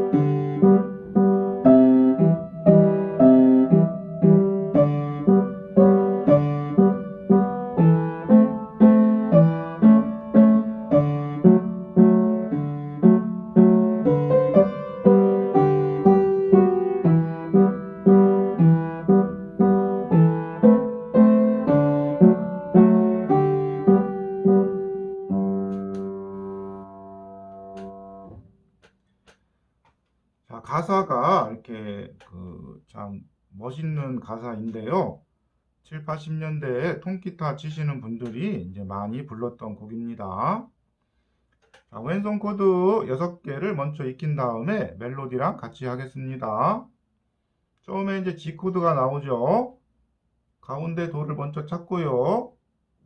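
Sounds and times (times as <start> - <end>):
piano playing a simple song: 0.0 - 28.4.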